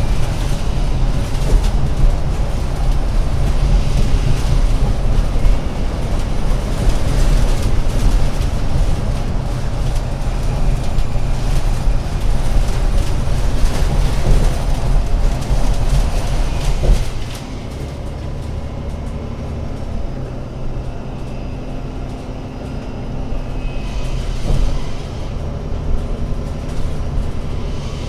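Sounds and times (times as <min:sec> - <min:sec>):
bus engine and road rumble: 0:00.0 - 0:28.0.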